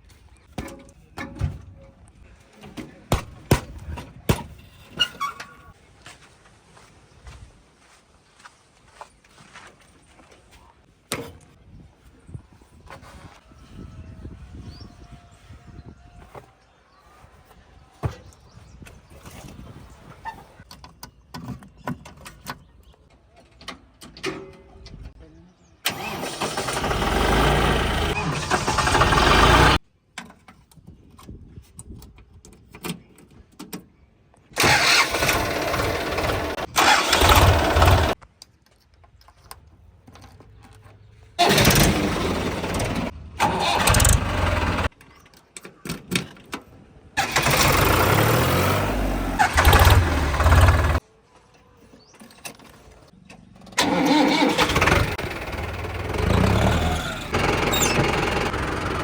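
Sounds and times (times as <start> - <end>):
tractor diesel engine running: 25.9 - 29.8, 34.6 - 38.2, 41.4 - 44.9, 47.2 - 51.0, 53.8 - 59.0.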